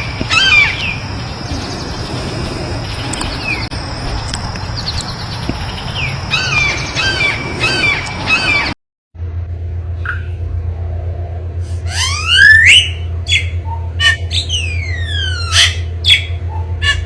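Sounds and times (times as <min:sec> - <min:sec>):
wild birds calling: 0:00.0 - 0:03.7, 0:04.6 - 0:08.8, 0:11.6 - 0:17.0
low steady hum: 0:00.0 - 0:17.0.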